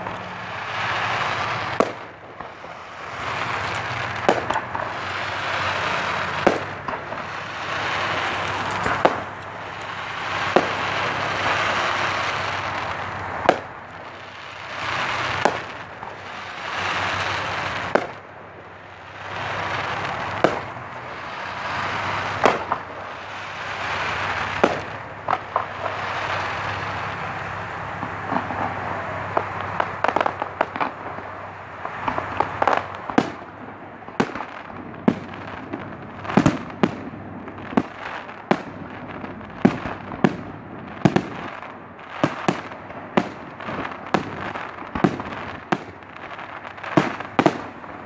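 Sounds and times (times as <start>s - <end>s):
fireworks burst hissing: 0.0s - 18.2s
fireworks bangs: 0.0s - 48.0s.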